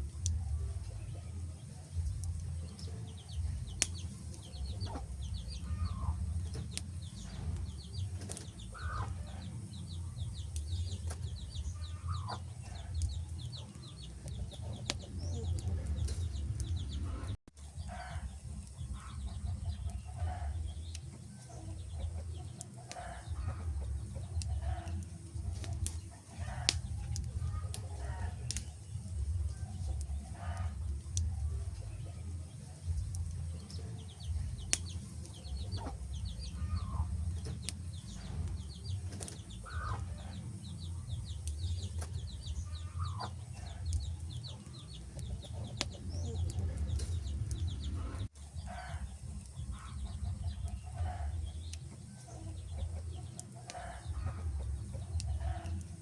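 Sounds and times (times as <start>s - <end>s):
low rumble: 0.0s - 21.0s, 23.2s - 51.8s
wood fire crackling: 0.0s - 56.0s.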